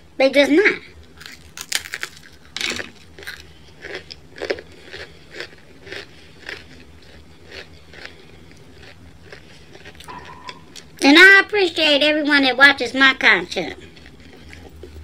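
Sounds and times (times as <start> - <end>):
person chewing crunchy pizza: 1.0 - 11.0, 13.7 - 15.0.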